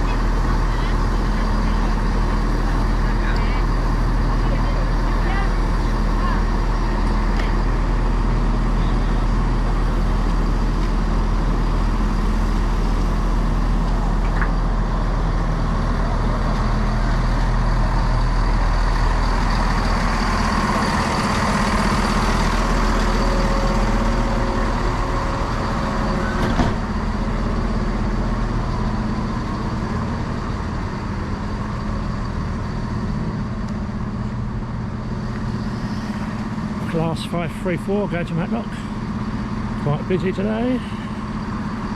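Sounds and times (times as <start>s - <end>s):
train diesel engine running: 0.0s - 41.9s.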